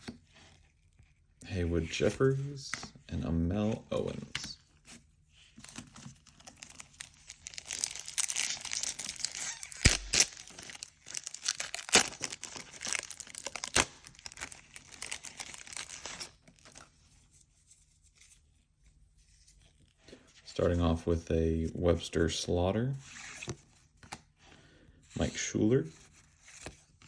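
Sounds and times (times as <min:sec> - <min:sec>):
plastic wrapper tearing and crinkling: 0:05.7 - 0:16.9.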